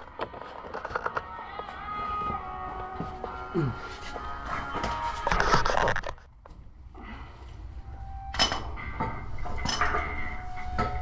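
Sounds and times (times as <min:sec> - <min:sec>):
metal objects clinking: 0:08.4 - 0:11.0.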